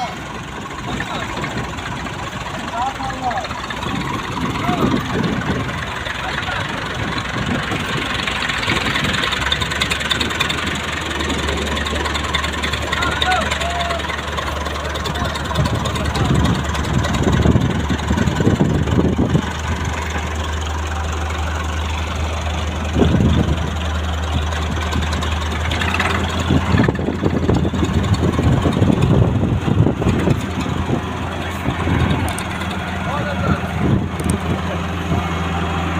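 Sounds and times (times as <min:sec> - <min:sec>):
tractor engine idling: 0:00.0 - 0:35.9.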